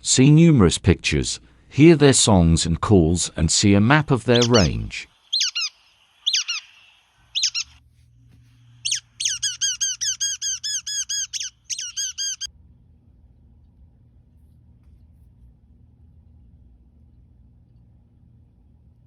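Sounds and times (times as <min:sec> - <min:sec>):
bird call with falling notes: 0:04.3 - 0:07.8, 0:08.8 - 0:12.5.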